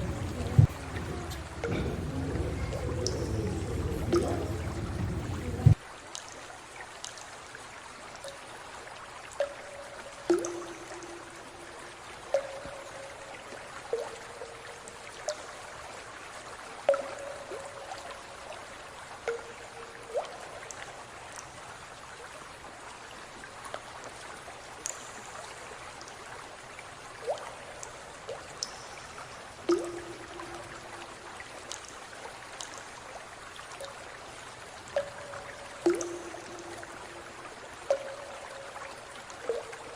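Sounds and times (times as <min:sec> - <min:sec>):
drips plinking into water: 0:00.0 - 0:06.4, 0:09.4 - 0:15.6, 0:16.9 - 0:18.2, 0:19.2 - 0:21.5, 0:24.8 - 0:26.2, 0:27.2 - 0:32.0, 0:33.6 - 0:39.9
water trickling: 0:00.0 - 0:39.9.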